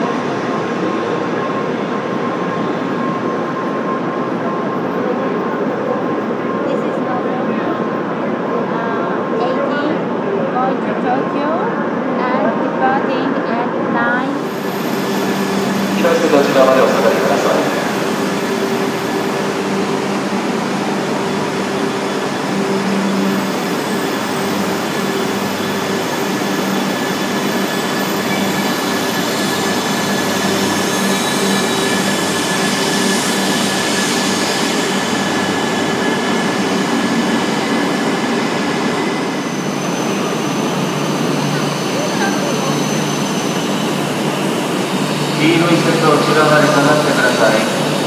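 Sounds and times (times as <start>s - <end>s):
train wheels rumbling on rail: 14.2s - 48.0s.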